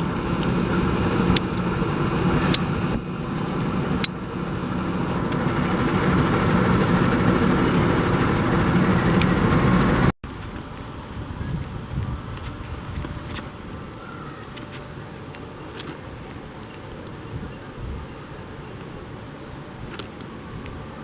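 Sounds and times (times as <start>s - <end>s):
train wheels clicking: 0.0s - 10.1s
train rumbling past: 0.0s - 14.0s
wind noise: 0.0s - 14.2s, 16.1s - 18.3s.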